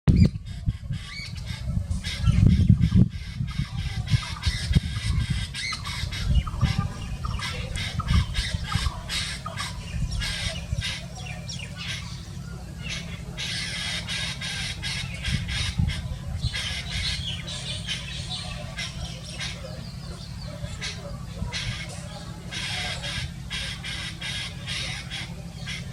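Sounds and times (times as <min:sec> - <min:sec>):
bird squawking: 0:00.1 - 0:25.9.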